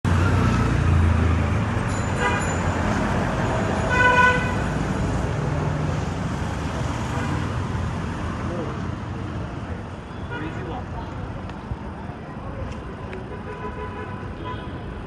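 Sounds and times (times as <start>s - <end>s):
engine and traffic rumble: 0.0s - 15.0s
car horn honking: 2.1s - 2.6s, 3.9s - 4.7s.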